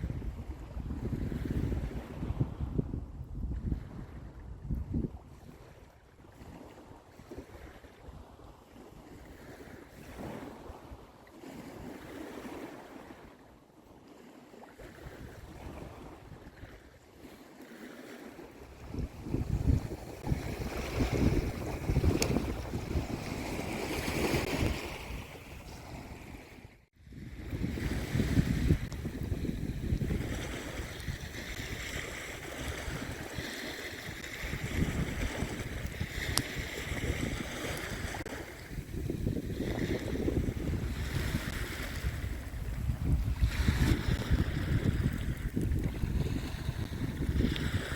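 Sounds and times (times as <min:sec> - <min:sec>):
wind rumbling on microphone: 0:00.0 - 0:13.5, 0:14.7 - 0:17.4, 0:18.2 - 0:47.9
waves washing on beach: 0:03.7 - 0:47.9.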